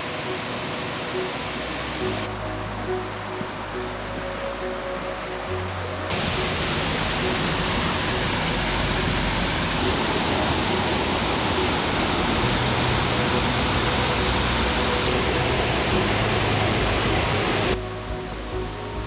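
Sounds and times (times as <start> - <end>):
faint background music: 0.0 - 19.0
waterfall rushing: 0.0 - 19.0.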